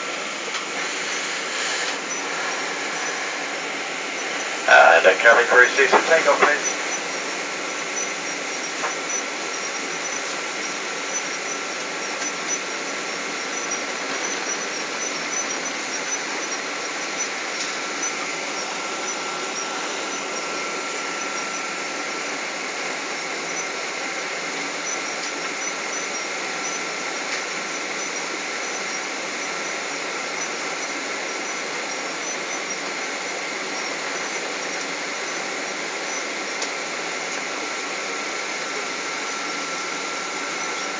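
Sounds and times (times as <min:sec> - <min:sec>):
rush of air and engine noise: 0:00.0 - 0:07.6
thin high whine: 0:00.6 - 0:24.1, 0:30.4 - 0:40.9.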